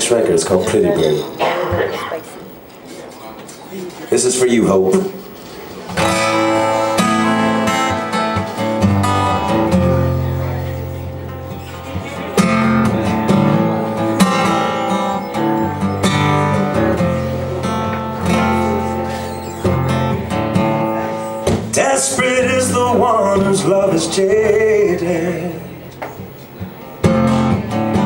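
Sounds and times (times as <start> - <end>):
acoustic guitar strumming chords: 5.8 - 28.0.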